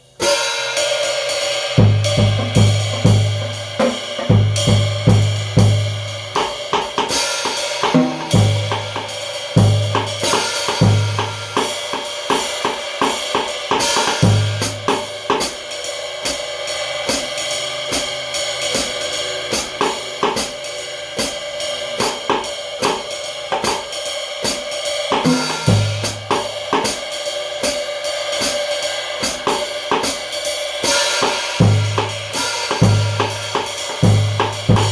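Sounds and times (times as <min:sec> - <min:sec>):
cymbals and hi-hat ringing: 0:00.0 - 0:34.9
bass drum thumps: 0:01.8 - 0:06.0, 0:34.0 - 0:34.9.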